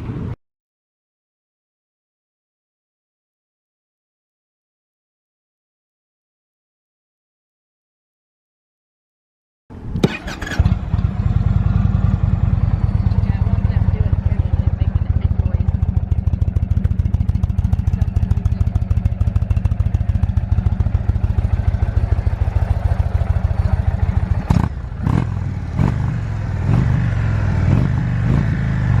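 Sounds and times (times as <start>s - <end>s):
motorcycle engine idling and revving: 9.7s - 29.0s.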